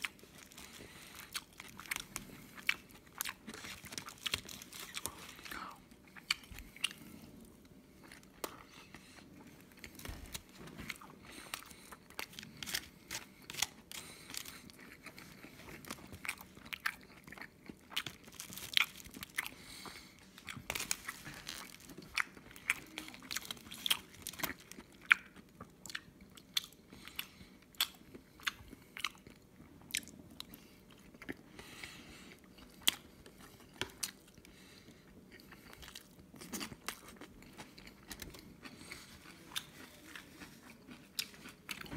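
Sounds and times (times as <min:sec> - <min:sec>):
person chewing: 0:00.0 - 0:41.9.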